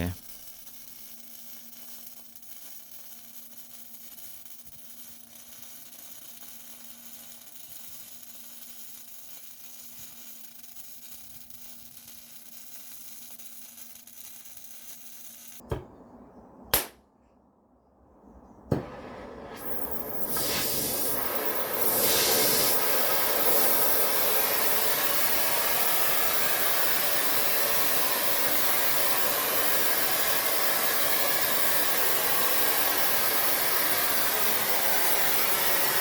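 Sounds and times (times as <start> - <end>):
sharp knock: 15.6 - 16.0
faint hum: 15.6 - 20.4
low hiss: 18.7 - 36.0.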